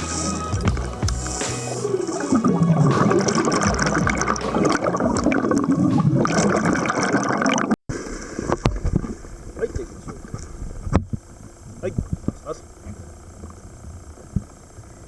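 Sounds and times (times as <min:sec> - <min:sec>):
water bubbling and gurgling: 0:01.8 - 0:12.4.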